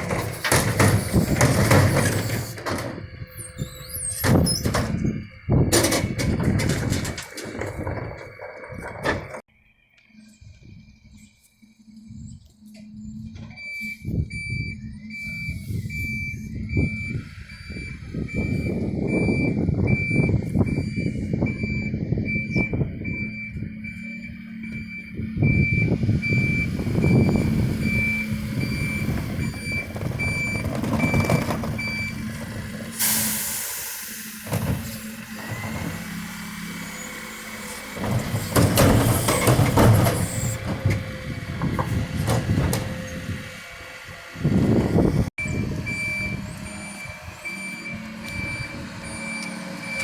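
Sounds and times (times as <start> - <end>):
diesel engine running: 0.0 - 50.0
reversing alarm beeping: 10.2 - 32.4, 45.4 - 50.0
air hissing out: 33.0 - 34.3.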